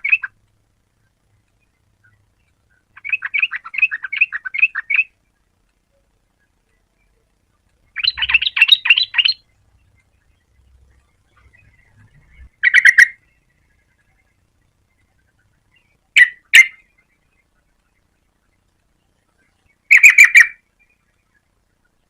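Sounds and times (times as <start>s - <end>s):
bird singing bubbling notes: 7.9s - 14.4s.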